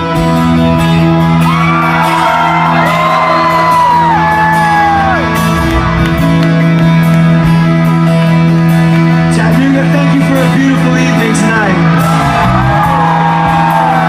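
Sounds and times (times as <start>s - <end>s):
rock band holding a chord: 0.0s - 14.0s
crowd whooping: 1.3s - 6.3s, 11.7s - 14.0s.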